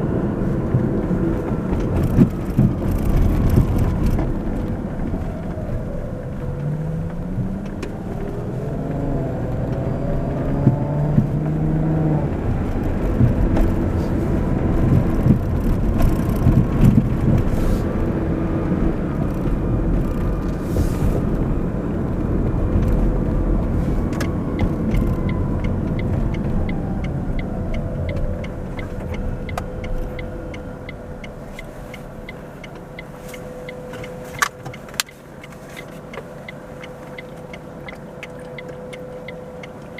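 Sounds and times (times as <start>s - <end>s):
car engine accelerating: 0.0s - 39.9s
road noise: 0.0s - 39.9s
regular ticking: 24.2s - 39.9s.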